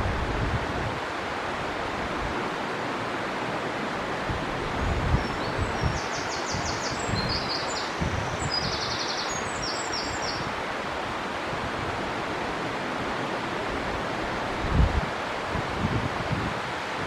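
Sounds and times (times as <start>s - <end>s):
river rushing: 0.0s - 17.0s
wind gusts on microphone: 0.0s - 17.0s
songbird trilling: 5.2s - 10.5s.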